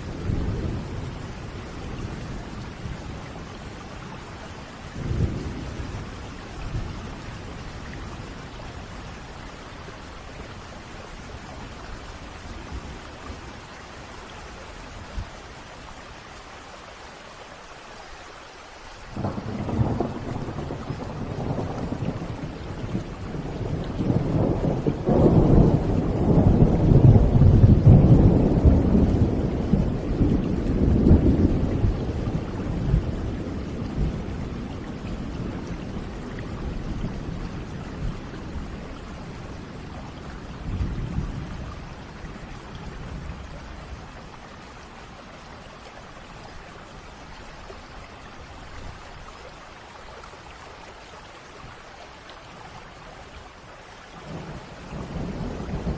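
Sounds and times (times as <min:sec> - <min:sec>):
rain hiss: 0:00.0 - 0:55.9
thunder rumbling: 0:19.2 - 0:44.4, 0:54.2 - 0:55.9.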